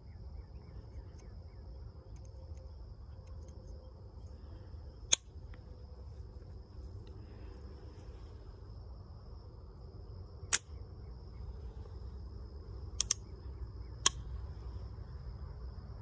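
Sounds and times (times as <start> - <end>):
faint high whine: 0.0 - 16.0
low hum: 0.0 - 16.0
pistol clicks: 10.5 - 10.7, 13.0 - 13.3, 14.0 - 14.3.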